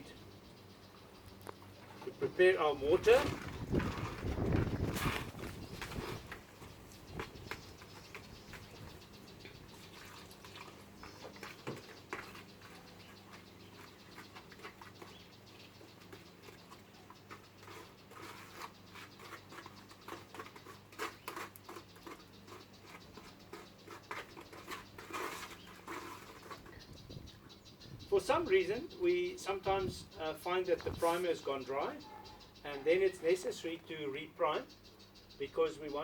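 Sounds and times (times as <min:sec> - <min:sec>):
gritty mortar scraping: 0:02.2 - 0:09.0, 0:16.0 - 0:26.8.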